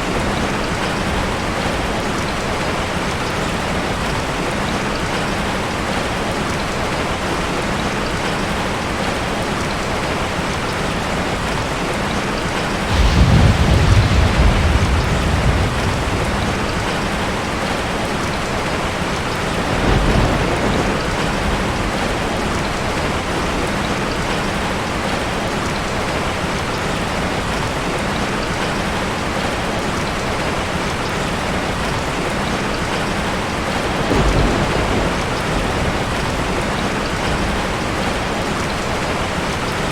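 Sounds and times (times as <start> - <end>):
steady rain falling: 0.0 - 39.9
thunder rumbling: 12.6 - 25.2, 33.4 - 39.8.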